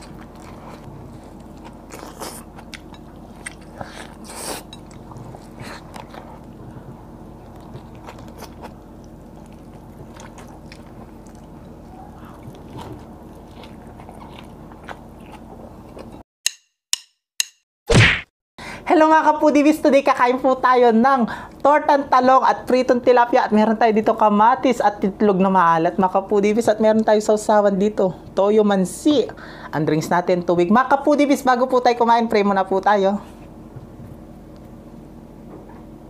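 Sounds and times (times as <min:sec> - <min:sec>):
low steady hum: 0:00.0 - 0:16.2, 0:18.6 - 0:36.0
wet chewing: 0:00.0 - 0:16.2.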